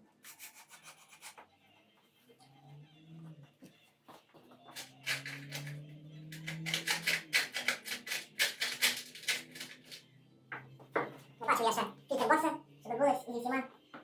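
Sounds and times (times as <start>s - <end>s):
clicks and rattles of metal parts: 4.7s - 10.0s.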